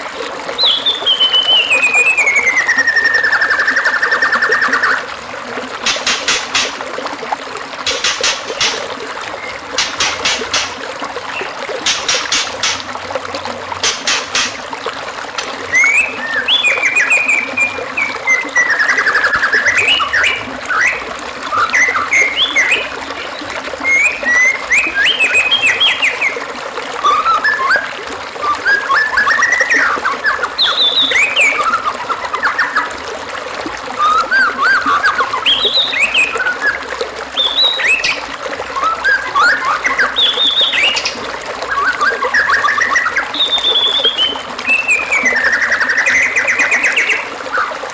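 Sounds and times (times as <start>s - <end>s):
trickling water: 0.0s - 47.9s
songbird whistling: 0.6s - 5.0s, 15.7s - 22.9s, 23.8s - 26.4s, 27.0s - 32.9s, 34.0s - 36.8s, 37.4s - 38.2s, 38.8s - 47.8s
sharp bird clicks: 7.9s - 10.8s.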